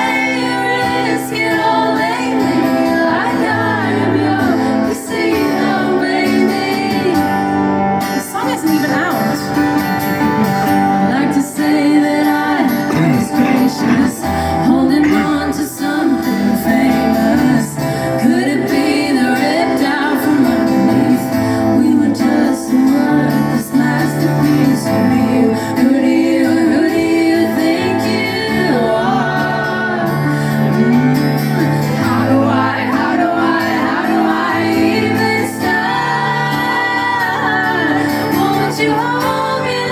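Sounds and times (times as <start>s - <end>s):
woman singing: 0.0s - 9.6s, 10.8s - 39.9s
guitar: 0.0s - 39.9s
live band playing: 7.2s - 11.7s, 12.4s - 18.5s.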